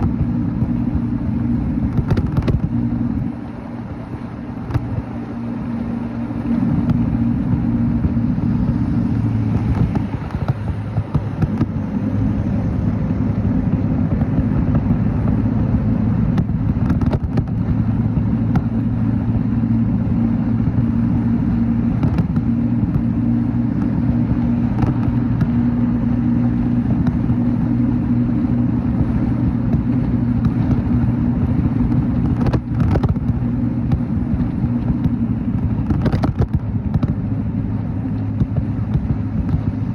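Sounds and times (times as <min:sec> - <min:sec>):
motorcycle engine hum: 0:00.0 - 0:39.9
road and wind noise: 0:00.0 - 0:39.9.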